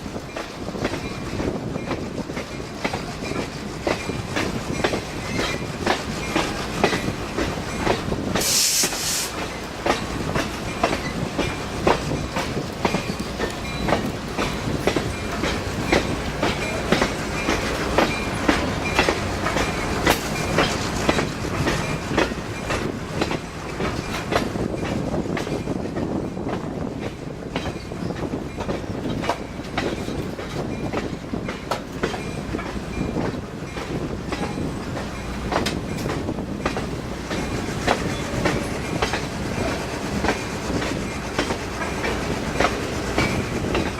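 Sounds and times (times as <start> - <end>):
train rumble: 0.0 - 43.9
train wheels clattering on rails: 0.0 - 43.9
short hiss: 8.4 - 9.4.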